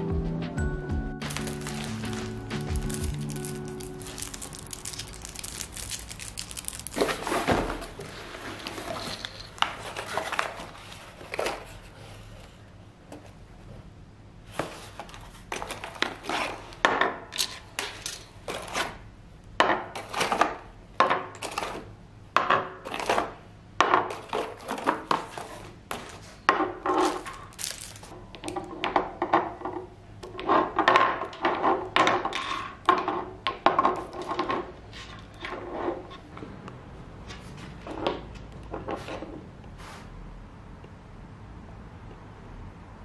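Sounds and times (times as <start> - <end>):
small hard objects clicking: 1.2 - 7.2, 27.4 - 28.1
rustling: 1.2 - 12.4, 27.0 - 28.1.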